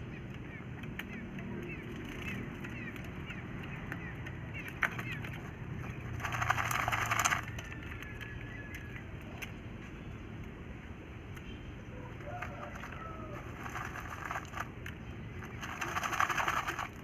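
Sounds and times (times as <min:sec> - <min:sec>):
low background hum: 0:00.0 - 0:17.0
small birds chirping: 0:00.0 - 0:17.0
quail dust-bathing rustle: 0:12.0 - 0:17.0.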